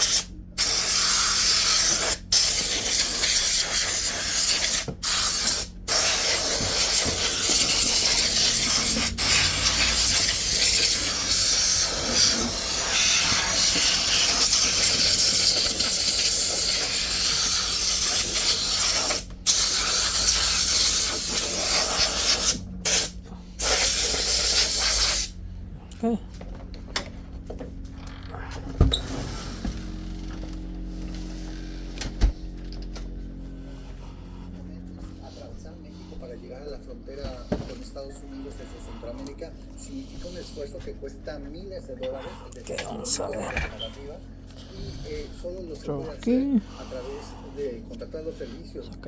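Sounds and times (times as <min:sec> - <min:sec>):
compressed air blow gun hissing: 0:00.0 - 0:25.4.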